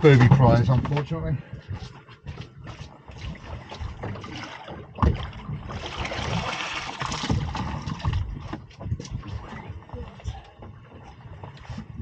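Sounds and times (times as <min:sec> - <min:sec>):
hard knock on boat: 0:00.0 - 0:12.0
water splashing and rushing: 0:02.8 - 0:12.0.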